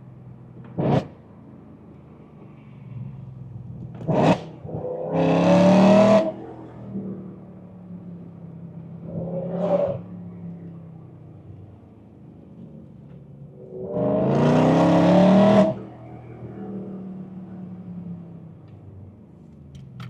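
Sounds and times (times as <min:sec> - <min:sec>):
engine revving: 0:04.0 - 0:06.4, 0:13.8 - 0:15.8.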